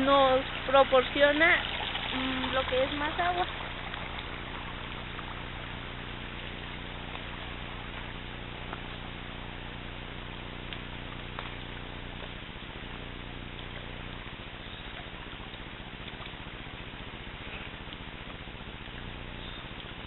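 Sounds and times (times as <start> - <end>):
low steady hum: 0.0 - 20.0
stream water rushing: 0.0 - 20.0
faint ticks: 10.6 - 20.0.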